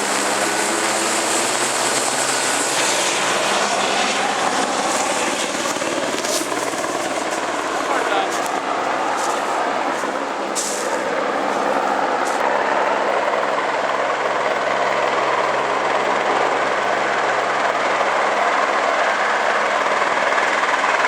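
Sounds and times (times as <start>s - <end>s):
helicopter running: 0.0s - 21.0s.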